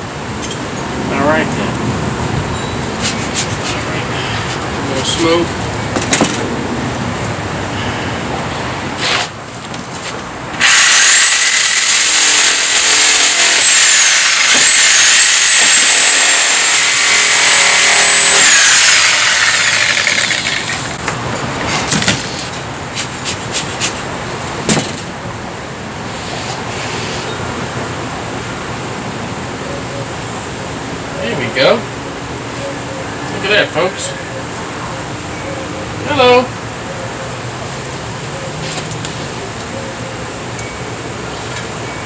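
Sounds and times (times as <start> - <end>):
power saw cutting wood: 10.6 - 21.2.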